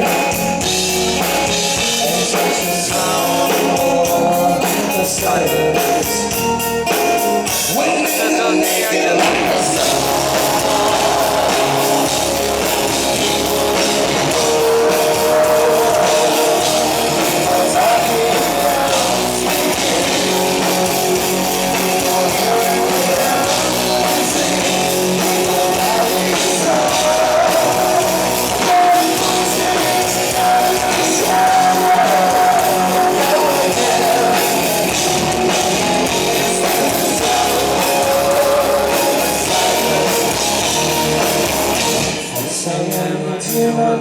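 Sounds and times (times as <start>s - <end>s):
held melody line: 0.0s - 42.4s
drum kit: 0.0s - 43.6s
distorted electric guitars: 0.0s - 44.0s.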